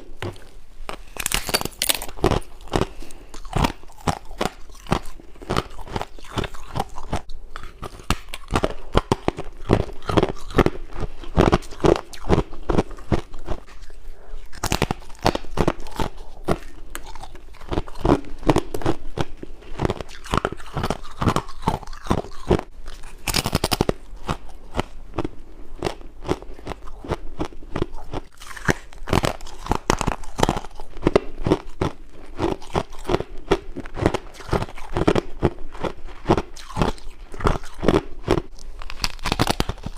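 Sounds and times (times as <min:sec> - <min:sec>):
chewing ice crunches: 0:00.2 - 0:39.9.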